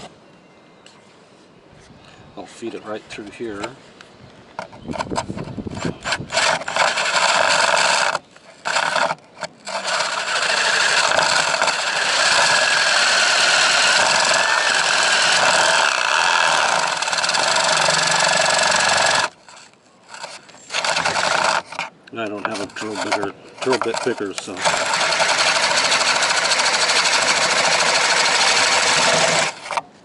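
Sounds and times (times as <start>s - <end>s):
power drill running: 5.8s - 19.4s, 20.1s - 21.8s, 22.5s - 29.8s.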